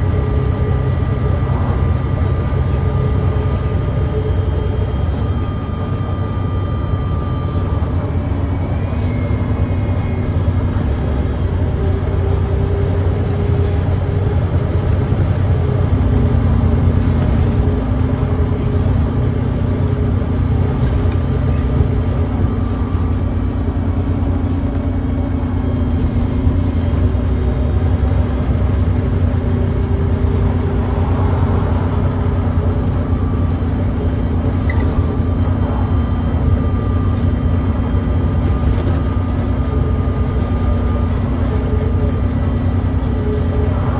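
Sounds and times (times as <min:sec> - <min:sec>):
bus diesel engine droning: 0:00.0 - 0:43.9.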